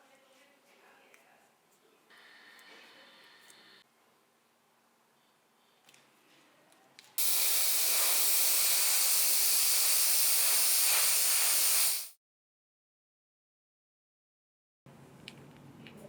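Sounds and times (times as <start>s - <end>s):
aerosol spray can hissing: 7.2s - 12.2s.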